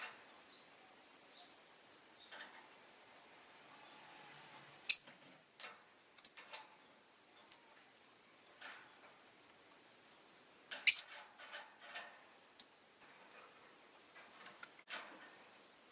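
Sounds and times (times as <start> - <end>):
lovebirds chirping: 0.0 - 2.4, 4.8 - 5.2, 10.8 - 11.1.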